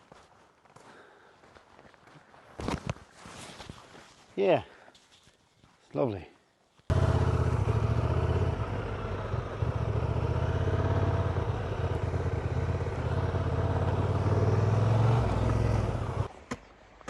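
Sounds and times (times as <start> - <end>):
motorcycle engine running: 6.9 - 16.3.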